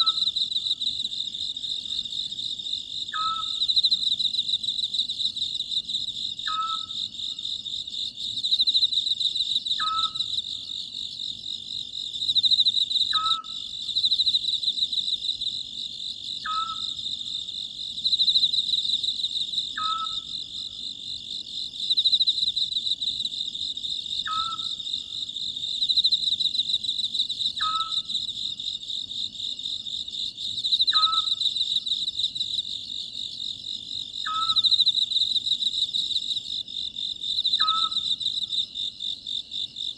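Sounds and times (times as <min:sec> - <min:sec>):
crickets trilling: 0:00.0 - 0:39.9
owl hooting: 0:03.1 - 0:03.6, 0:06.5 - 0:07.0, 0:09.8 - 0:10.2, 0:13.1 - 0:13.6, 0:16.4 - 0:17.0, 0:19.8 - 0:20.4, 0:24.3 - 0:24.8, 0:27.6 - 0:28.1, 0:30.9 - 0:31.4, 0:34.2 - 0:34.7, 0:37.6 - 0:38.0.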